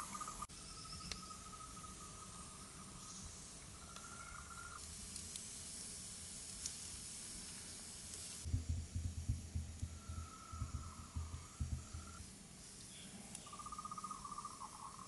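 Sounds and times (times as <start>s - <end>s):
insects chirring: 0.0s - 15.0s
irregular low thuds: 8.4s - 12.2s.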